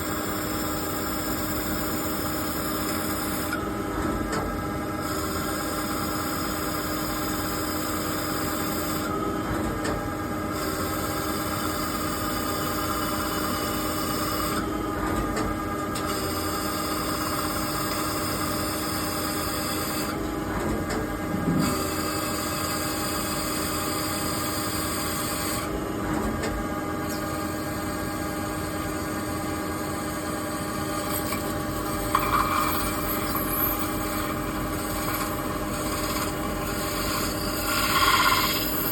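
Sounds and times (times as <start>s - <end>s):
lathe hum and whine: 0.0s - 38.9s.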